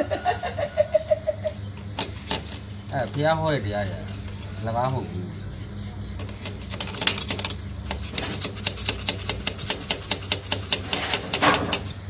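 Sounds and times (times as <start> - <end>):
rapid sharp clicks: 6.2 - 11.9.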